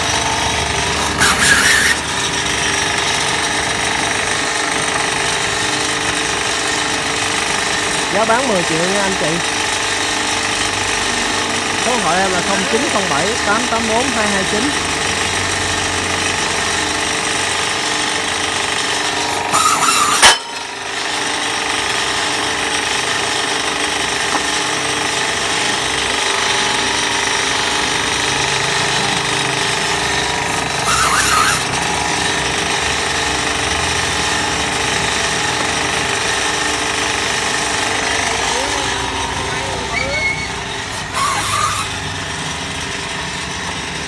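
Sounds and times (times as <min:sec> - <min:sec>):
tyre-cutting machine motor running: 0:00.0 - 0:44.0.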